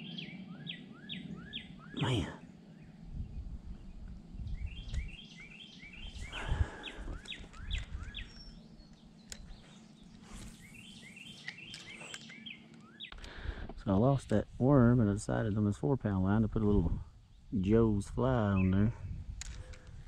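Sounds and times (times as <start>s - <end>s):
songbird whistling: 0.0s - 2.9s, 4.4s - 13.2s
low rumbling: 1.2s - 5.3s, 5.9s - 8.6s.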